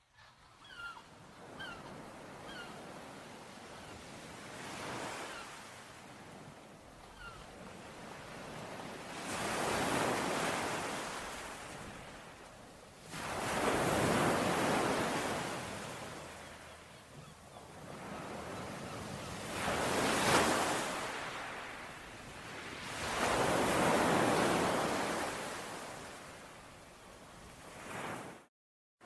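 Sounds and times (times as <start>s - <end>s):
ocean waves breaking on shore: 0.6s - 28.5s.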